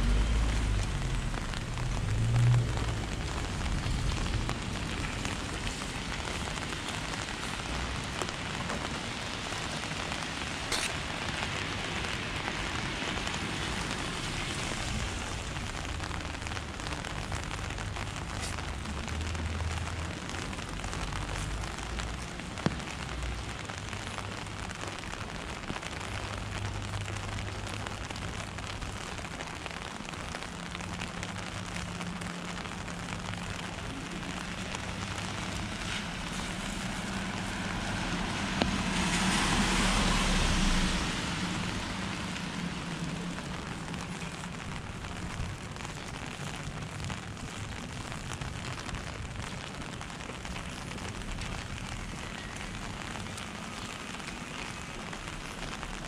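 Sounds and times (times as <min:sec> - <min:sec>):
low rumbling: 0:00.0 - 0:08.6
steady rain falling: 0:00.0 - 0:56.0.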